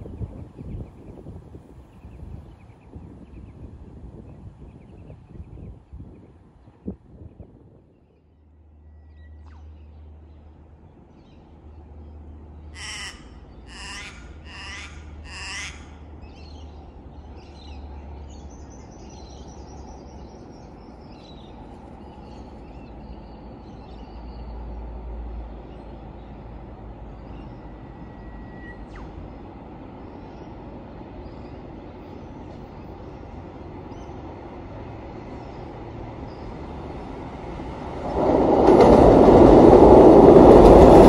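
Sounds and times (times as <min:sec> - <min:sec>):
distant train rumble: 0:00.0 - 0:41.0
crow cawing: 0:12.7 - 0:16.0.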